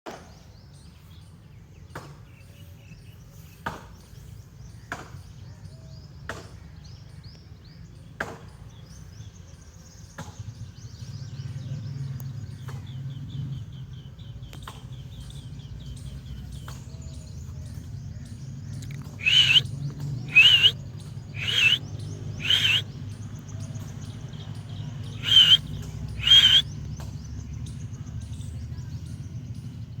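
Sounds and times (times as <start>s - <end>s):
soft bird chirps: 12.1s - 29.5s
sharp clicks: 18.8s - 19.6s, 20.3s - 20.7s, 21.4s - 21.8s, 22.4s - 22.8s, 26.2s - 26.6s
parrot squawking: 19.2s - 19.6s, 20.3s - 20.8s, 21.4s - 21.8s, 22.4s - 22.8s, 25.2s - 25.6s, 26.2s - 26.6s.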